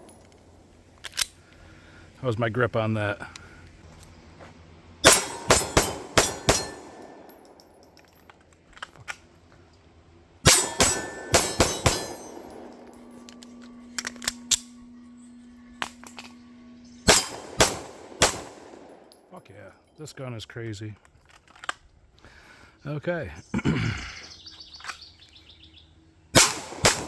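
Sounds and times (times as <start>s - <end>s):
pistol shots: 5.0s - 7.5s, 10.4s - 13.1s, 17.1s - 19.1s, 26.4s - 27.0s.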